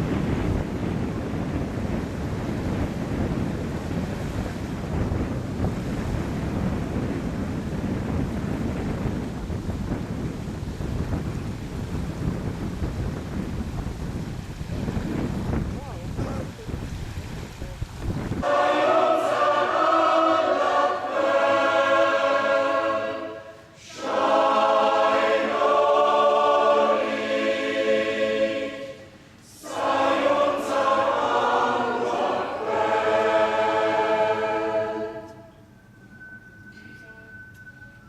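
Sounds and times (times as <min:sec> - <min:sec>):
choir singing: 0:18.4 - 0:36.5.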